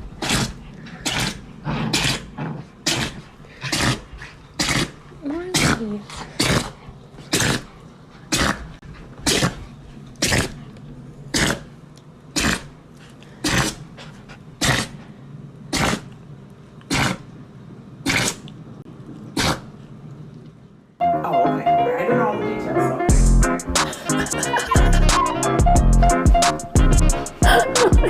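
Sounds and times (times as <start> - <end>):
pet sneezing: 11.3 - 11.7, 12.4 - 12.7, 13.4 - 15.0, 16.9 - 17.2, 18.0 - 18.4, 19.4 - 19.7.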